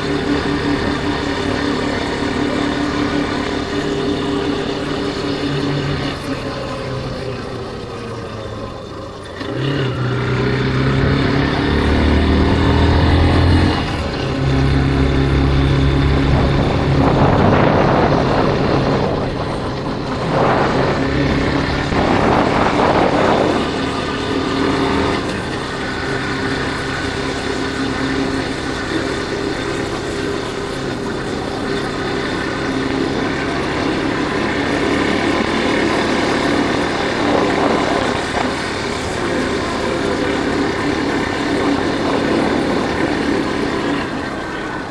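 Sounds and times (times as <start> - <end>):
motorcycle engine cruising: 0.0 - 44.9
wind noise on microphone: 9.4 - 44.9.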